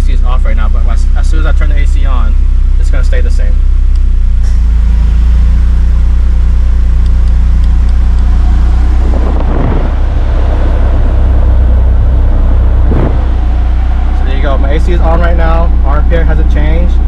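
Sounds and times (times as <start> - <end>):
car engine idling: 0.0 - 17.0
air conditioning rushing noise: 6.8 - 16.8.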